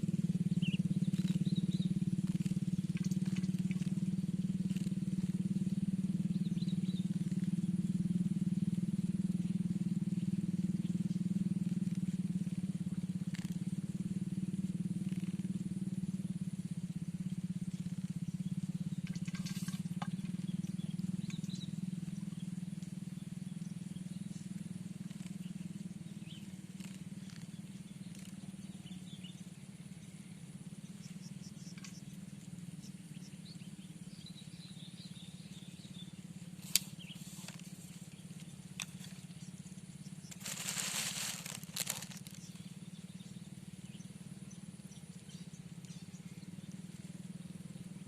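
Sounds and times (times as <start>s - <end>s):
motor droning: 30.9s - 47.7s.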